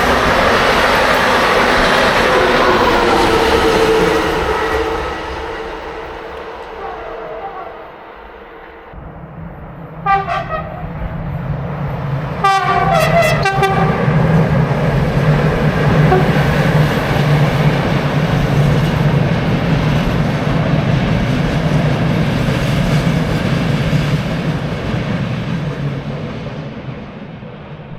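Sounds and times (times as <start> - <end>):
train passing with rumble: 0.0 - 27.9
train horn blasts: 1.2 - 9.0, 10.0 - 11.3, 12.4 - 14.4, 15.9 - 16.9.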